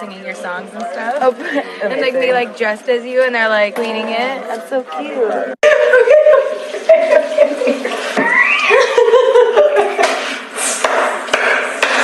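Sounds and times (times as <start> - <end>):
women laughing and squealing: 5.6 - 10.3.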